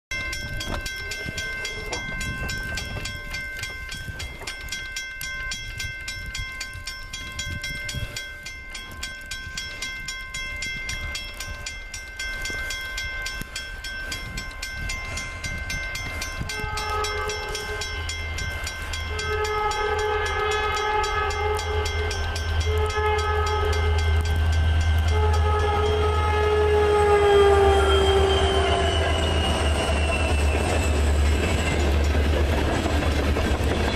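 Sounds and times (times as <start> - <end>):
diesel locomotive engine rumble: 5.6 - 33.9
train air horn blasts: 16.4 - 18.2, 19.0 - 30.8.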